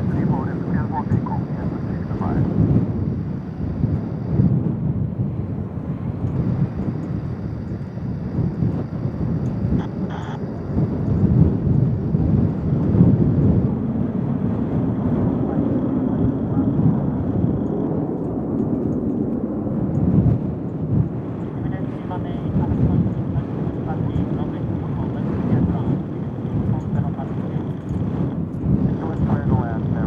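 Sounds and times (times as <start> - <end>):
faint high whine: 0.0 - 4.6, 5.8 - 13.7
distant jet engines rumbling: 0.0 - 30.0.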